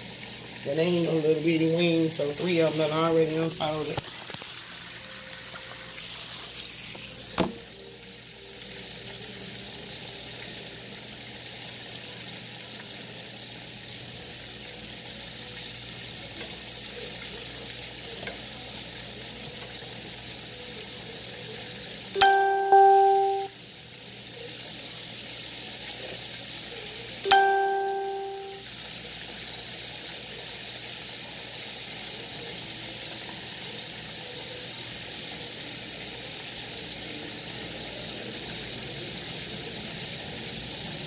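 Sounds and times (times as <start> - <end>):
wings deep-frying in bubbling oil: 0.0 - 41.0
single knock: 7.4 - 7.6.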